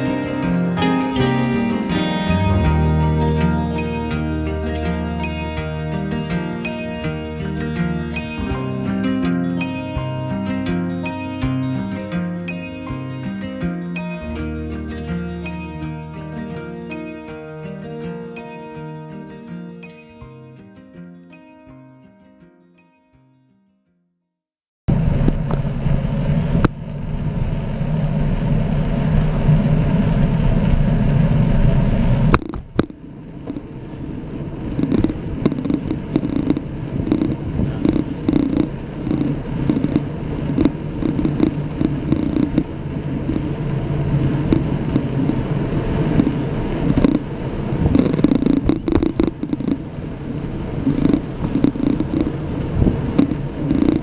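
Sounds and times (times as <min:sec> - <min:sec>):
bicycle tyre rumble on path: 0:24.9 - 0:54.0
wind on microphone: 0:29.2 - 0:54.0.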